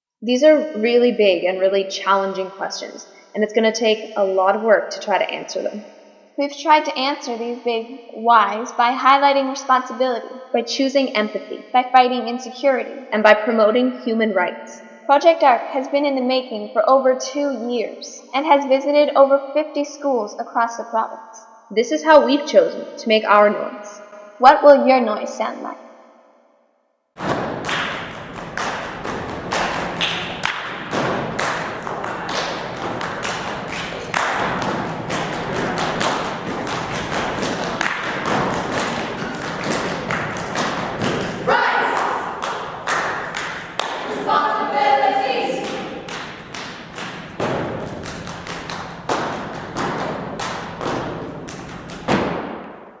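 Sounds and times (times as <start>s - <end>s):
low thuds: 27.2s - 44.5s
rhythmic percussion hits: 27.2s - 52.9s.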